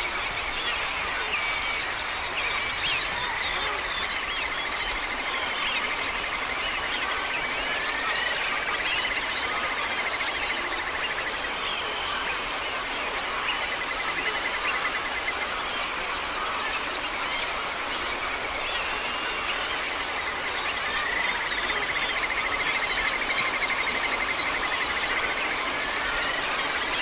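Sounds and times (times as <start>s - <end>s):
outdoor hiss: 10.4s - 27.0s.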